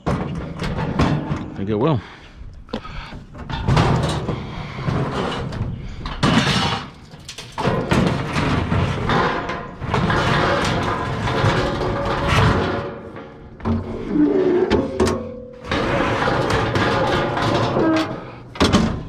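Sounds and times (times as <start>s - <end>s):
scrap metal scraping and clanking: 3.4s - 19.0s.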